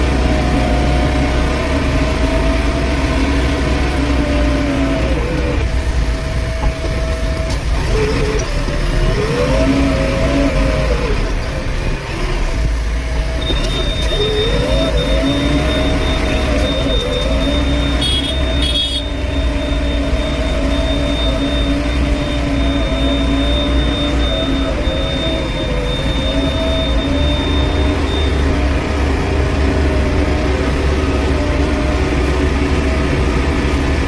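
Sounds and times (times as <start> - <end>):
backhoe diesel engine revving: 0.0 - 34.0
short high beeps: 13.4 - 28.7.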